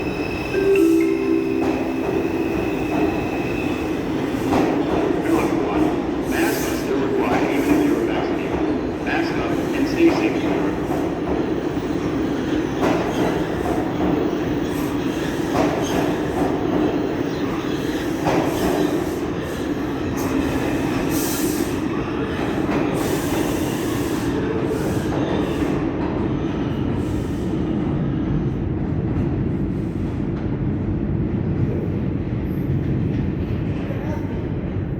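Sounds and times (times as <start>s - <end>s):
subway train rumbling: 0.0s - 34.9s.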